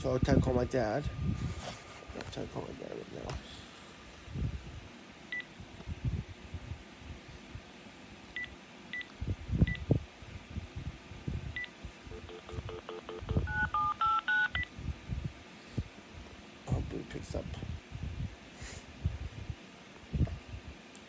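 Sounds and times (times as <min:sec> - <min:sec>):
keypad beeps: 0:11.6 - 0:14.7
touch-tone dial tones: 0:12.1 - 0:14.7.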